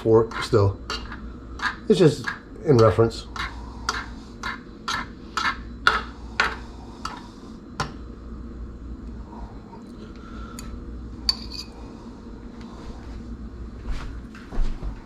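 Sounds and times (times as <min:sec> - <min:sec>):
metal fork scraping a dish: 0:11.3 - 0:11.8.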